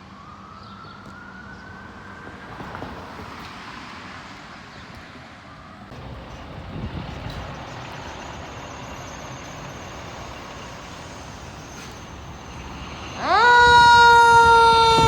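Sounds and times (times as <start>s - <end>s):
fire truck siren: 0.0s - 3.3s, 8.3s - 15.0s
road traffic noise: 0.0s - 15.0s.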